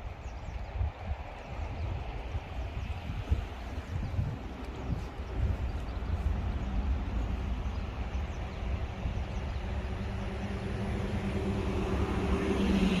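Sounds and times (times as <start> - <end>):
wind rumble on microphone: 0.0 - 13.0
engine humming: 3.2 - 13.0.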